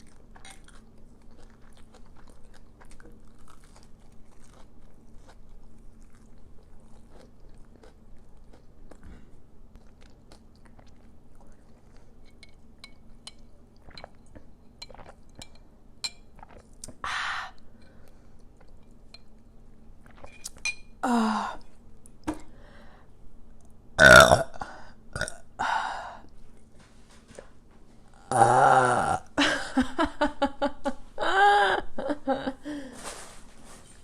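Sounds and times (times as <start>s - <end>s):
crunching crispy food: 0.0s - 8.7s
person burping: 24.0s - 25.5s, 28.2s - 29.4s.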